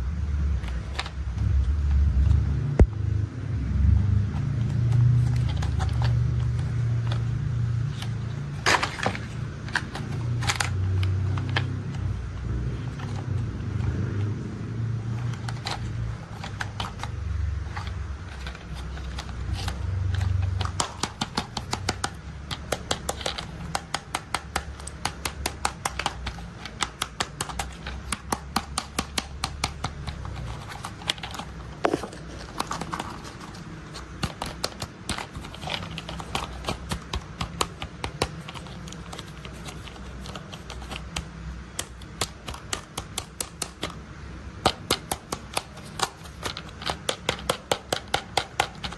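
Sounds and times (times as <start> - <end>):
sharp plastic clicks: 15.0 - 48.9.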